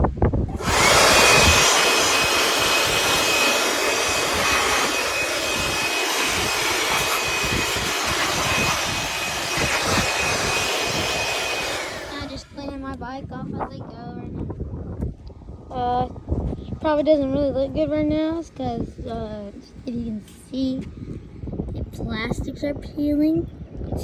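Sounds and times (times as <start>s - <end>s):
water jet spraying: 0.5s - 12.7s.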